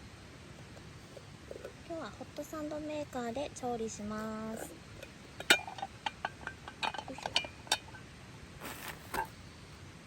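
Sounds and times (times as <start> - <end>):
metal clinks and knocks: 5.4 - 8.0
short rustle: 8.6 - 9.3.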